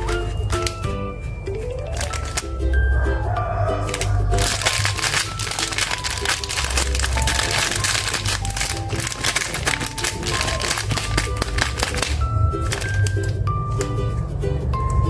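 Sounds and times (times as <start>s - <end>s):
candy wrapper crinkling: 0.0s - 14.0s.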